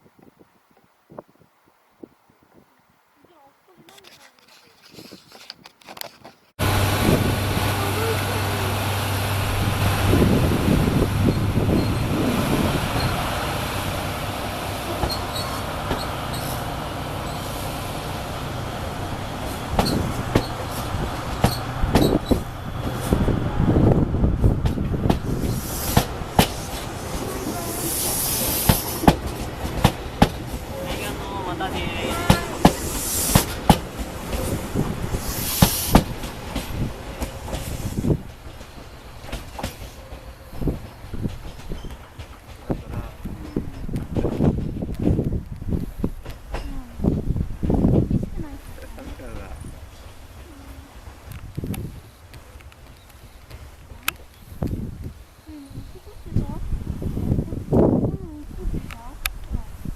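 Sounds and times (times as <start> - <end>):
train rumbling past: 6.6 - 59.9
burst of hiss: 25.3 - 29.2, 32.3 - 36.7.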